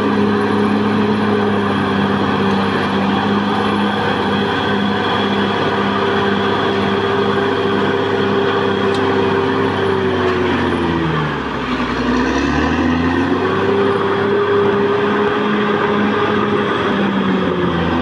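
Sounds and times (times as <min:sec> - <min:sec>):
bulldozer diesel engine running hard: 0:00.0 - 0:18.0.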